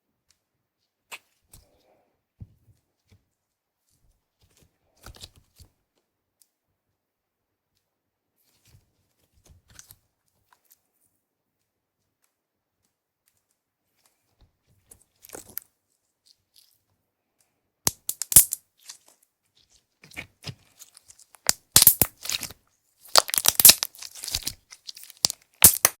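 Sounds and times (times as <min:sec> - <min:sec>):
slime crackling and popping: 0:20.1 - 0:26.0.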